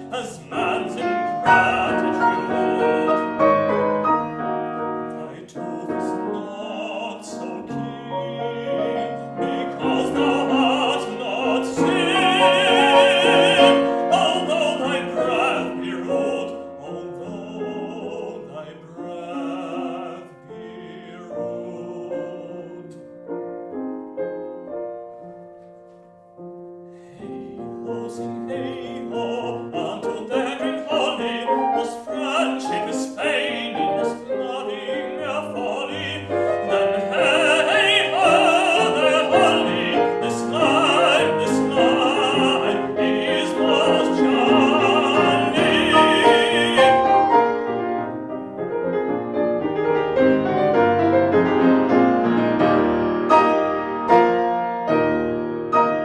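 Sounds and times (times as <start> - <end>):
tenor singing with vibrato: 0.0 - 23.2, 27.0 - 47.6
piano accompaniment: 0.0 - 56.0.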